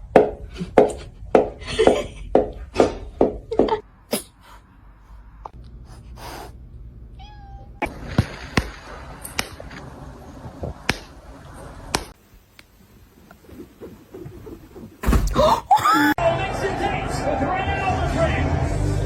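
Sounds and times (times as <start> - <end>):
cat meowing: 7.2 - 7.8.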